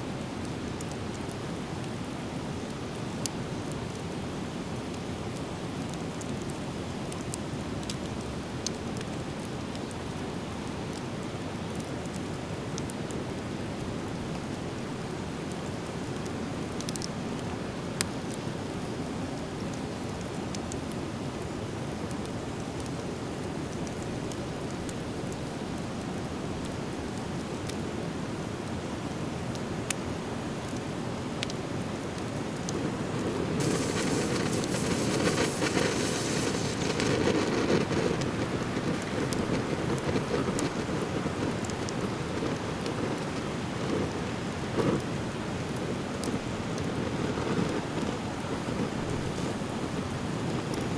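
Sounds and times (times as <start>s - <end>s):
bonfire crackling: 30.6s - 50.9s
fire popping: 32.1s - 49.4s
low rushing noise: 33.6s - 41.0s.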